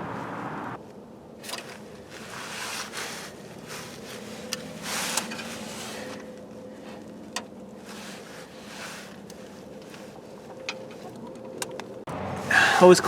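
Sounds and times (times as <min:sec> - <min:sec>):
rustling handling noise: 0:00.8 - 0:11.1.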